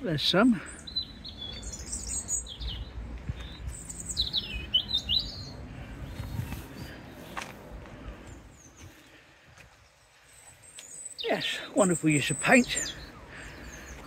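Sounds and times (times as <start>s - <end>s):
songbird warbling: 0.7s - 6.2s.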